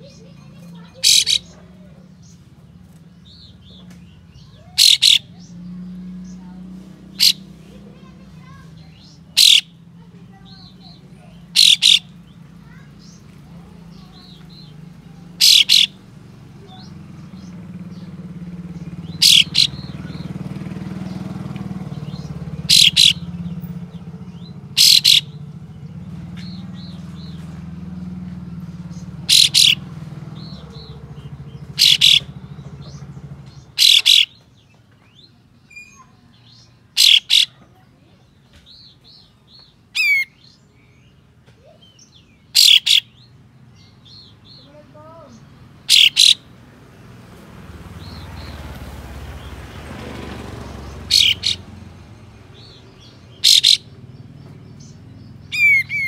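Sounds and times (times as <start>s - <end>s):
soft bird chirps: 0.0s - 46.5s, 47.9s - 56.0s
songbird sharp short calls: 0.8s - 1.6s, 4.4s - 5.6s, 7.1s - 9.8s, 10.4s - 13.2s, 15.4s - 16.0s, 19.1s - 20.3s, 22.0s - 23.6s, 24.3s - 25.4s, 28.9s - 34.4s, 35.7s - 37.6s, 40.0s - 40.6s, 41.6s - 46.4s, 51.0s - 51.8s, 52.6s - 54.0s, 54.8s - 56.0s.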